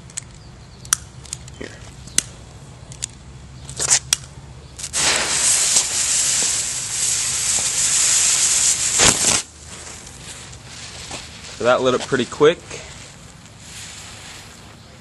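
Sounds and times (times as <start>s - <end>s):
sharp clicks: 0.0s - 5.0s
fuse burning with hiss: 4.8s - 15.0s.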